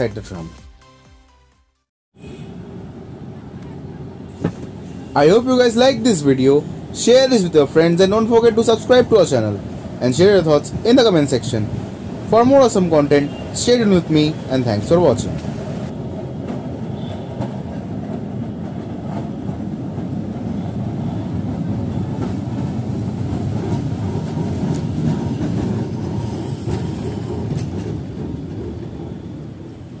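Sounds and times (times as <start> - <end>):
tram rumbling on rails: 2.2 - 30.0
wheels clicking on rails: 22.2 - 29.5.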